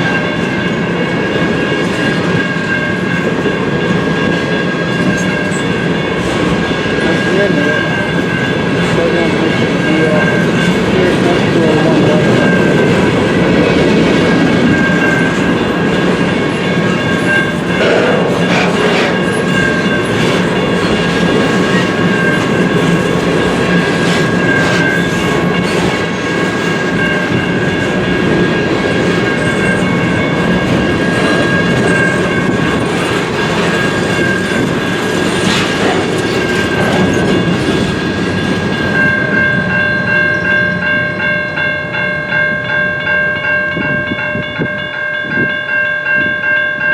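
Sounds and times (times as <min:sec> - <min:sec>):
freight train cars rumbling past: 0:00.0 - 0:46.9.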